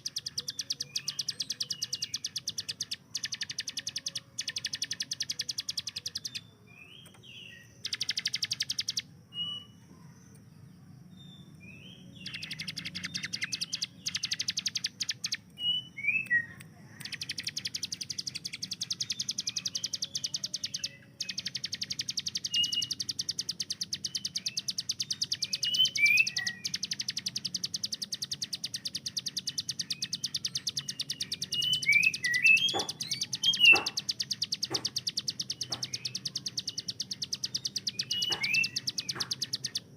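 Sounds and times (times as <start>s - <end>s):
bird downslurred chirps: 0.0s - 10.4s, 11.2s - 39.9s
bird rapid repeated notes: 7.8s - 9.0s, 12.2s - 15.5s, 17.1s - 39.9s
sharp clicks: 12.2s - 15.6s, 16.2s - 25.7s, 26.3s - 39.9s.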